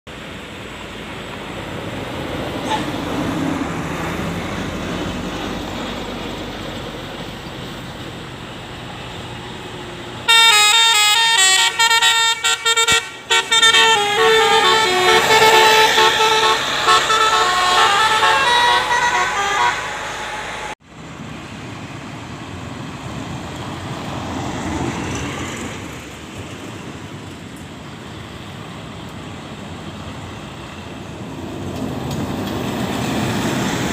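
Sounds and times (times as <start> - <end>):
passing road vehicles: 0.1 - 33.9
multi-tone bus horn tune: 2.6 - 3.1, 10.2 - 20.8.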